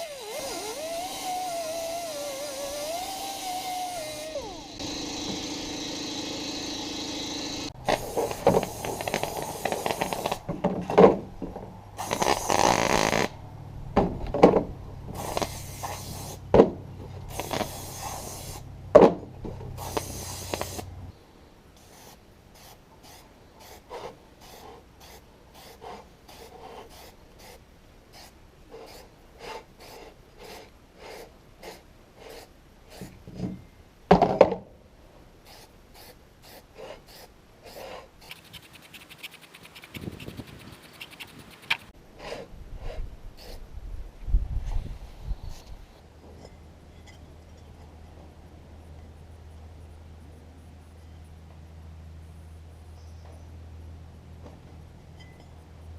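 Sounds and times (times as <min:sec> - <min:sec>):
tools scraping tire: 0:00.0 - 0:10.5, 0:12.0 - 0:13.4, 0:17.0 - 0:18.6, 0:19.5 - 0:21.0, 0:35.5 - 0:43.6.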